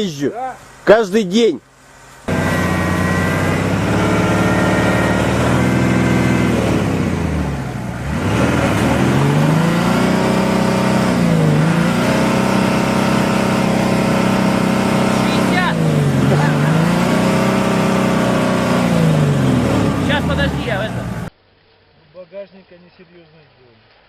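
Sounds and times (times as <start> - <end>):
car engine revving: 2.2 - 21.3.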